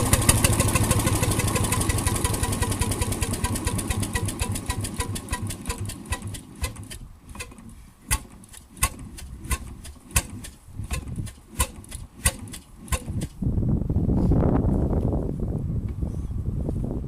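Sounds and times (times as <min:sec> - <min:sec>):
marine engine ticking: 0:00.0 - 0:13.3.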